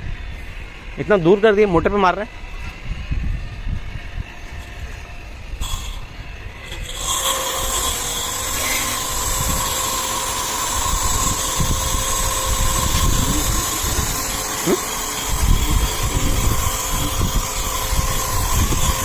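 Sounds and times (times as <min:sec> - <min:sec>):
pressure washer pump whining: 0:05.6 - 0:19.0.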